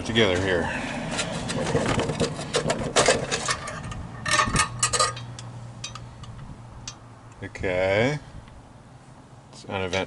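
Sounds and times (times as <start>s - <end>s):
hand tools on metal: 0.1s - 7.0s, 9.8s - 10.0s.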